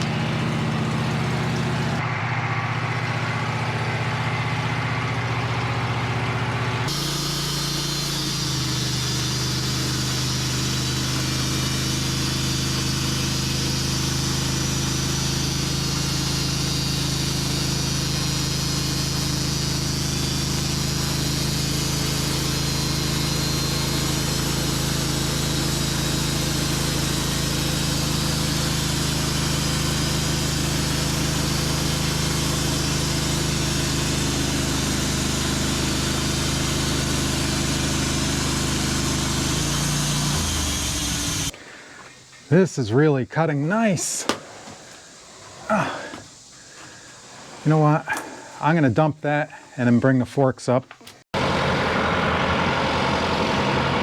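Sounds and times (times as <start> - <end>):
sawmill engine under load: 0.0 - 50.3, 50.9 - 54.0
saw blade hissing through wood: 6.9 - 50.0.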